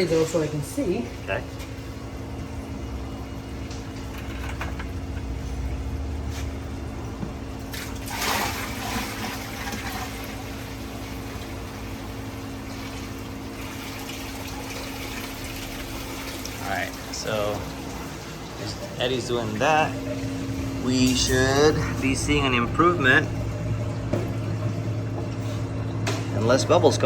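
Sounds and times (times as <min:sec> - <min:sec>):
steady low hum: 0:00.0 - 0:27.0
water pouring into aquarium: 0:07.7 - 0:19.0.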